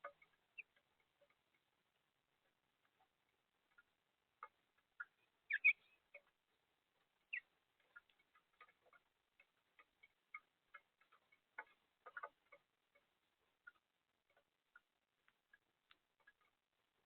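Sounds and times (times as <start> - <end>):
bird chirp: 0.0 - 1.7, 3.6 - 13.8
birds clicking at a feeder: 0.0 - 1.8, 2.5 - 6.4, 7.2 - 16.6.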